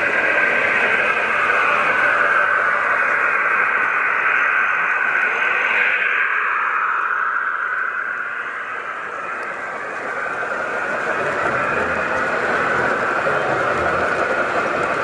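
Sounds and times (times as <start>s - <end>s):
steady high-pitched tone: 0.0s - 15.0s
train running by: 0.0s - 15.0s.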